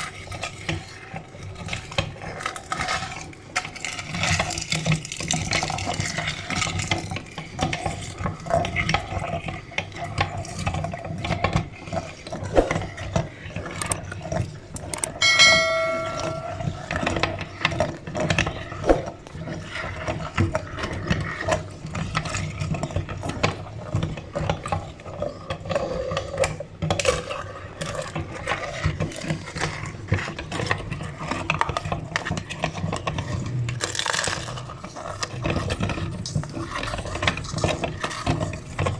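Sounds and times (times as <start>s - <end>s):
meat grinder crunching and rattling: 0.0s - 15.1s, 19.4s - 38.9s
brief metallic ring: 15.1s - 16.8s.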